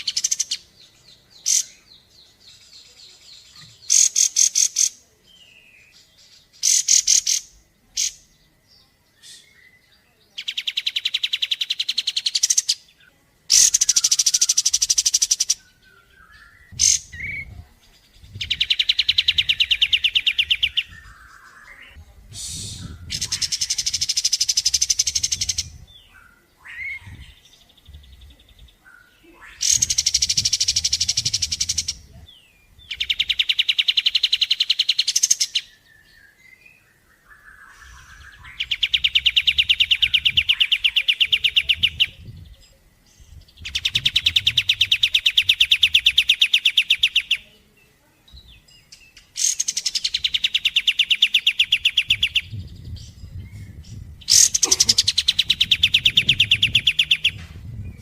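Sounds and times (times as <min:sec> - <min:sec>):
bird trilling: 0:03.4 - 0:05.0, 0:13.5 - 0:17.5, 0:22.7 - 0:27.4, 0:28.9 - 0:32.1, 0:54.2 - 0:57.4.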